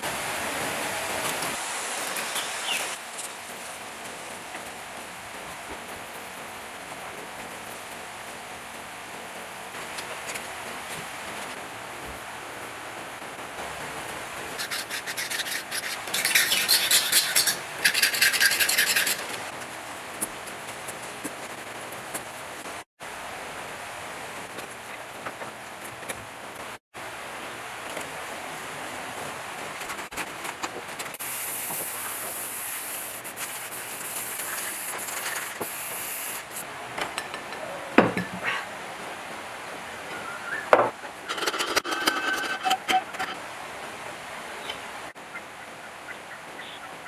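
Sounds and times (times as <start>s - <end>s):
steady hiss: 0.0s - 25.7s, 26.3s - 40.5s
abrasive scraping hard surface: 41.2s - 43.4s.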